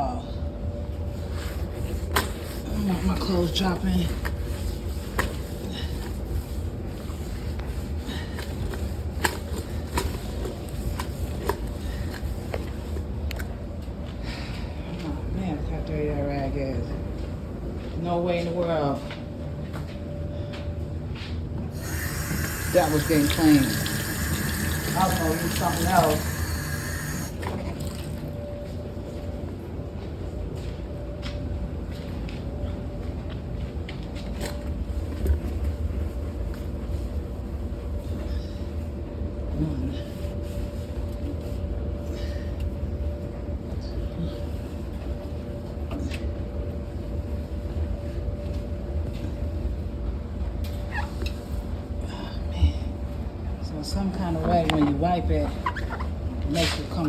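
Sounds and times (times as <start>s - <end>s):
steady low hum: 0.0s - 57.0s
rag wiping machine drum: 21.8s - 27.3s.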